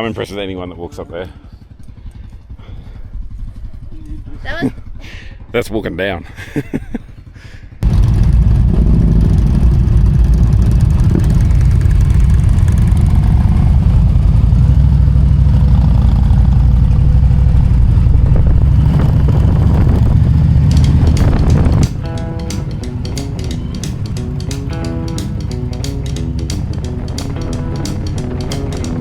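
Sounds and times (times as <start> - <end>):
motorcycle engine running: 0.0 - 29.0
music: 20.5 - 29.0.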